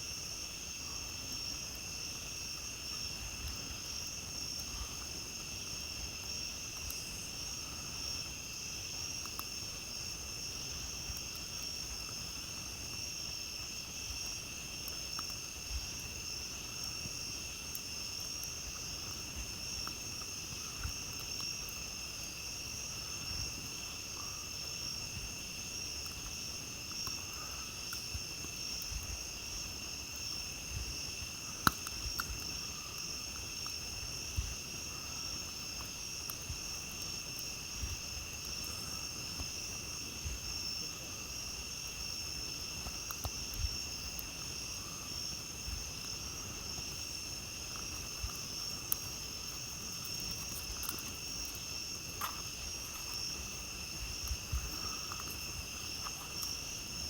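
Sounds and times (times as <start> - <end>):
night insects chirring: 0.0 - 57.0
campfire crackling pops: 2.6 - 57.0.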